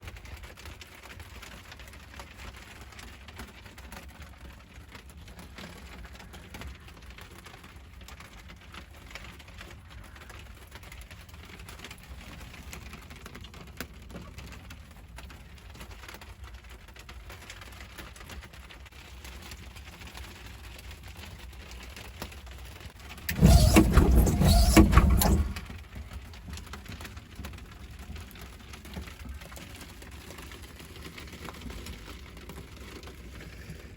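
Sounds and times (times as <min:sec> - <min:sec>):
loud noisy burst: 0:23.3 - 0:25.8.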